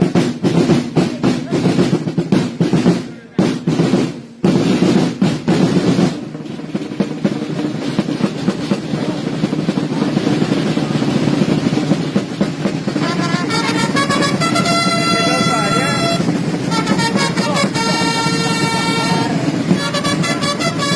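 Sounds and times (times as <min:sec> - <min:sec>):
snare drum roll: 0:00.0 - 0:20.9
held trumpet notes: 0:12.8 - 0:20.9.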